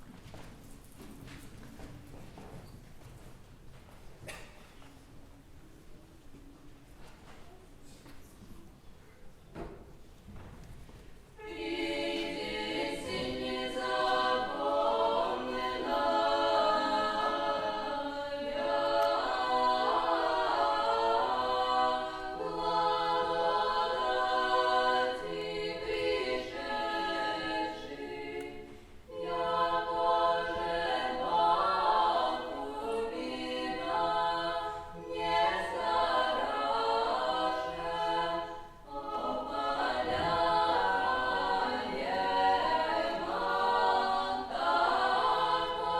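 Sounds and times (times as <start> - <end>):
choir singing a cappella: 11.3 - 45.9.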